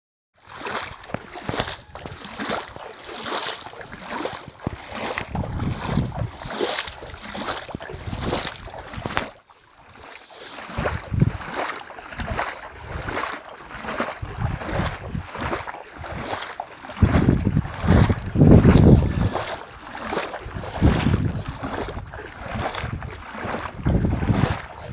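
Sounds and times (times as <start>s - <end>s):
gusty wind buffeting microphone: 4.5s - 7.1s, 10.6s - 11.5s, 14.2s - 24.9s.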